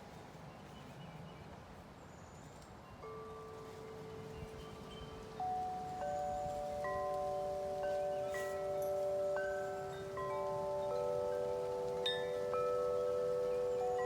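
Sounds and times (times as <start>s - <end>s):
wind chimes ringing: 2.9s - 14.0s.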